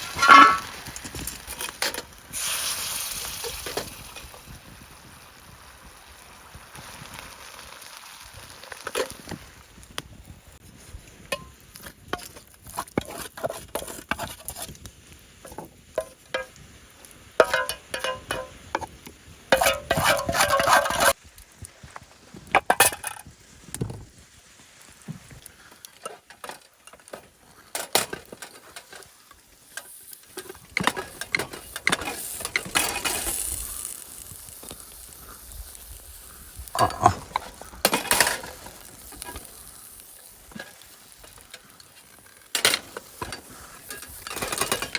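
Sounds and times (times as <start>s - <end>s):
utensil clinking against pot: 0.0s - 2.5s, 15.5s - 16.6s, 17.4s - 18.9s, 19.5s - 21.2s, 29.8s - 33.9s, 36.8s - 39.5s
food sizzling: 0.0s - 44.9s
knocks of cookware: 0.2s - 0.6s, 17.4s - 18.6s.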